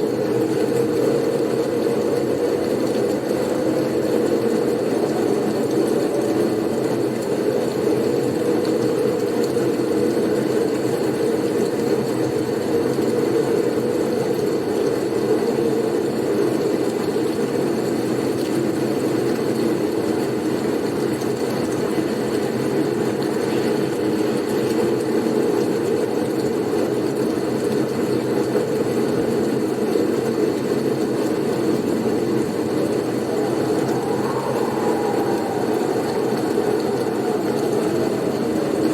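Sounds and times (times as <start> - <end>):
blizzard wind rumbling: 30.7 - 38.9.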